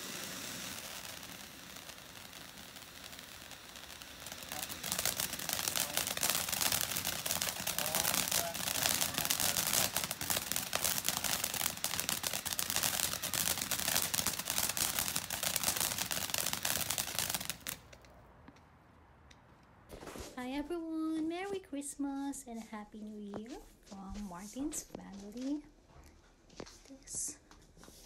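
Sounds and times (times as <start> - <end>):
fireworks cracking and popping: 0.0 - 18.7, 19.9 - 21.2.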